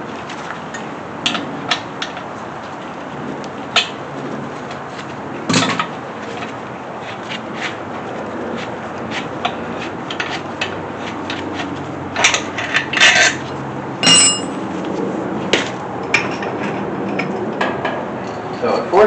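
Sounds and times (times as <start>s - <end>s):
metal tools clinking: 12.3s - 13.4s, 14.0s - 14.6s
sharp metallic clang: 14.0s - 14.6s.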